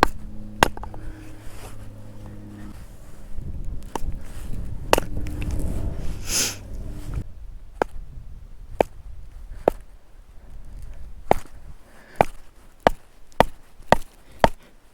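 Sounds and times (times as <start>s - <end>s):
low rumbling: 0.0s - 8.7s.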